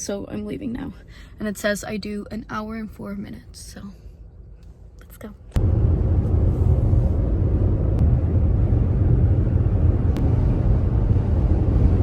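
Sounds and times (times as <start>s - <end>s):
car driving on road: 5.5s - 12.0s.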